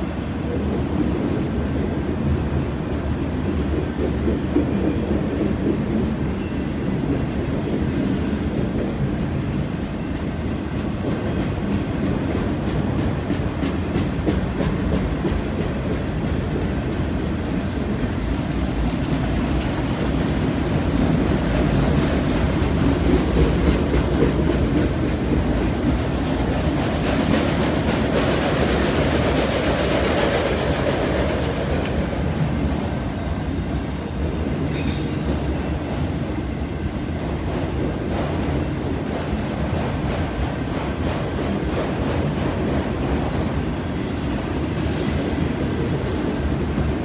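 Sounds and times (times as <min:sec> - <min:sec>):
rumble of steel wheels on rail: 0:00.0 - 0:47.0.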